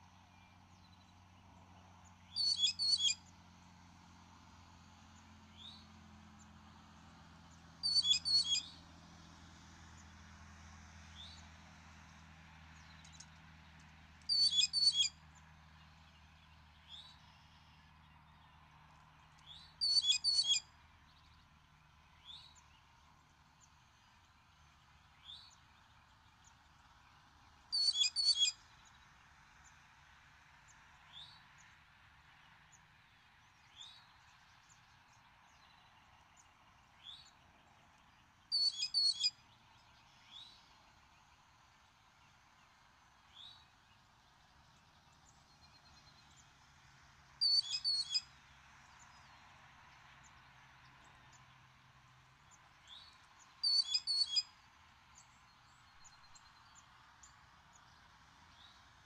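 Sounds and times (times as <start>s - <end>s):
small birds singing: 2.0s - 3.2s, 7.8s - 8.7s, 12.8s - 26.7s, 27.4s - 29.2s, 33.4s - 46.6s, 47.4s - 49.4s, 52.4s - 58.8s.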